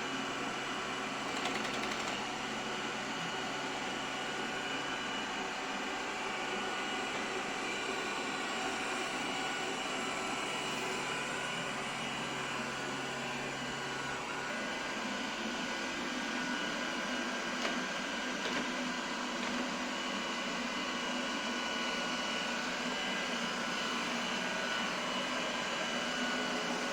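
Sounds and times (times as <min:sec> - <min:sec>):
robot vacuum whirring: 0:01.2 - 0:02.3.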